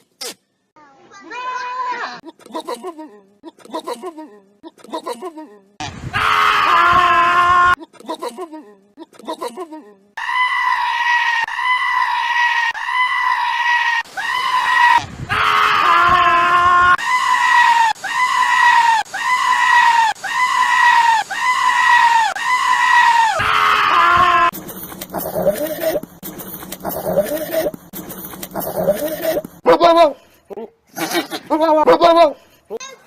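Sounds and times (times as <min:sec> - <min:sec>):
goat screaming: 0:10.2 - 0:24.5.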